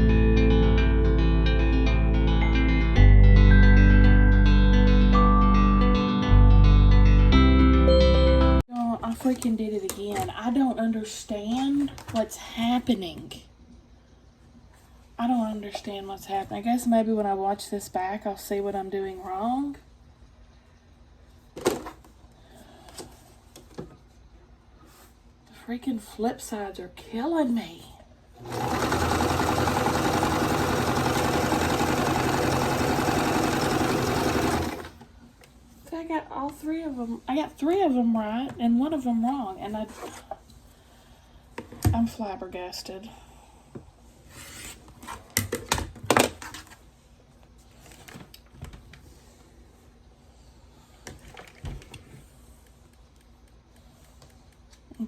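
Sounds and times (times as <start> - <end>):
electric sewing machine stitching: 28.4 - 35.0.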